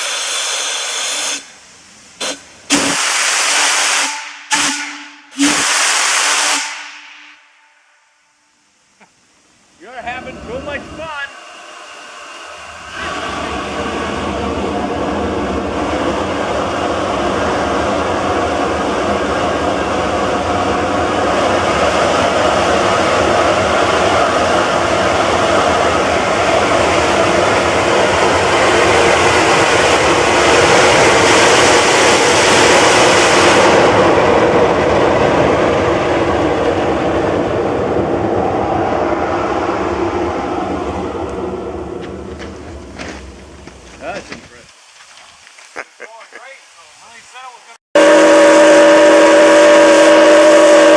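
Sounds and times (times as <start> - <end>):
high hiss: 0.0 - 33.9
train running past: 9.7 - 44.6, 46.8 - 50.9.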